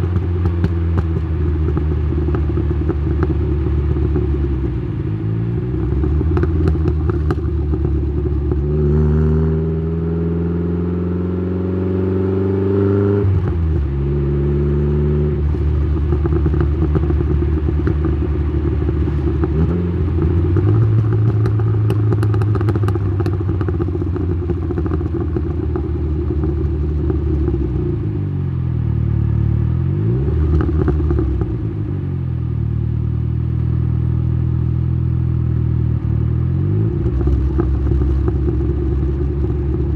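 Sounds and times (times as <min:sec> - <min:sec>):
exhaust crackling: 0:00.0 - 0:08.9, 0:15.3 - 0:28.1, 0:36.9 - 0:39.9
turbocharged car engine exhaust: 0:00.0 - 0:39.9.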